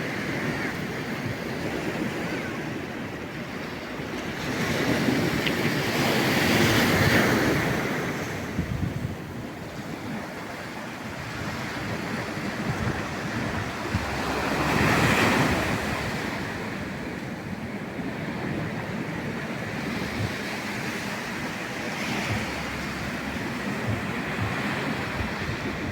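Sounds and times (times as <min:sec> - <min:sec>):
waves breaking on shore: 0:00.0 - 0:25.9.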